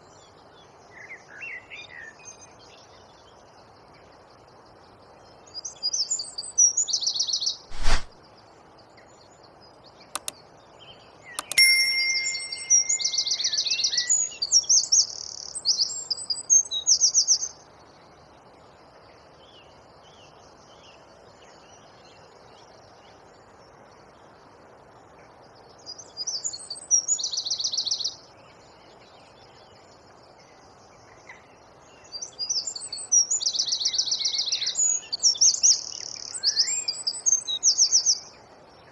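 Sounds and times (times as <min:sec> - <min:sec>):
wren singing rapid trills: 0:09.5 - 0:17.6
sharp clicks: 0:10.2 - 0:10.4, 0:11.4 - 0:11.6.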